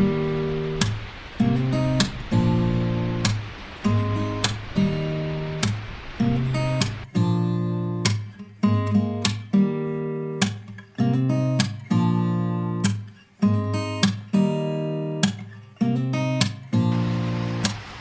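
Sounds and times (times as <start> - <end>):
steady hiss: 0.0 - 7.3, 16.8 - 18.0
acoustic guitar strummed chords: 0.0 - 18.0.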